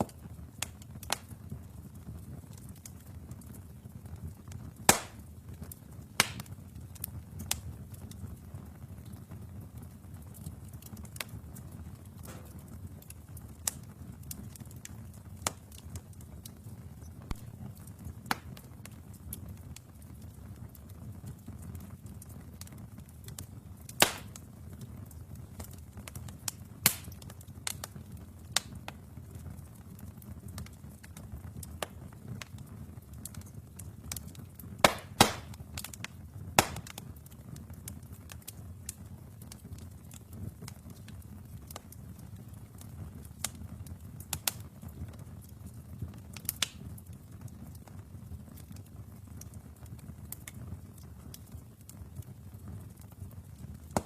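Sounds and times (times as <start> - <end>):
logs crackling and popping: 0.0 - 54.0
low rumble of flames: 0.0 - 54.0.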